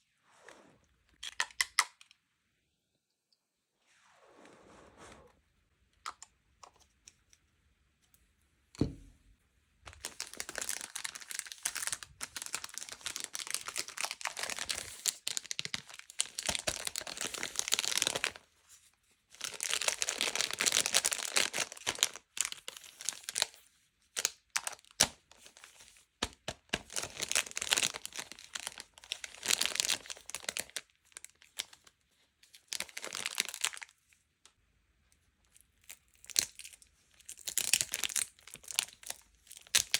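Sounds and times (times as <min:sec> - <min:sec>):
packaging torn and crinkled: 0:09.9 - 0:18.4, 0:19.3 - 0:23.6, 0:26.6 - 0:31.8, 0:32.6 - 0:33.9, 0:36.2 - 0:39.9.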